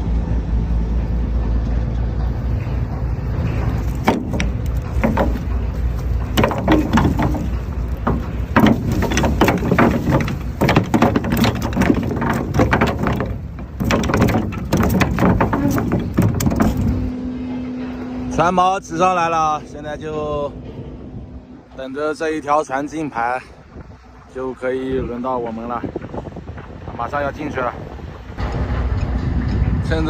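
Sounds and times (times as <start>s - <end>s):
low engine rumble: 0.0s - 30.0s
anchor gear knocking and rattling: 3.5s - 17.1s.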